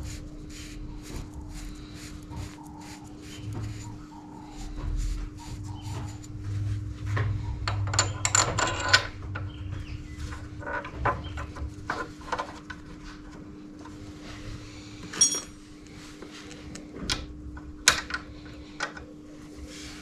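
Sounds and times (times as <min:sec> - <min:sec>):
steady low hum: 0:00.0 - 0:20.0
clinks of metal hand tools: 0:15.1 - 0:15.6.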